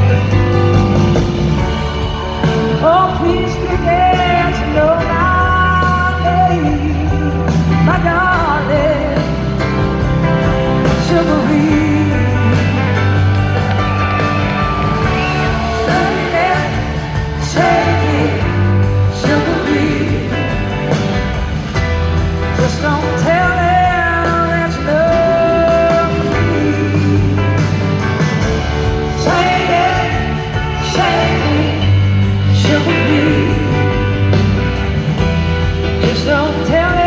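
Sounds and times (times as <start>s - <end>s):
lead guitar sliding and bending: 0.0s - 23.1s
bass guitar: 0.0s - 37.0s
drums: 0.0s - 37.0s.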